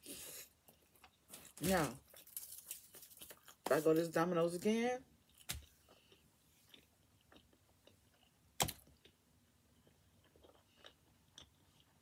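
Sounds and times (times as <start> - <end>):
faint chewing: 5.2 - 12.0.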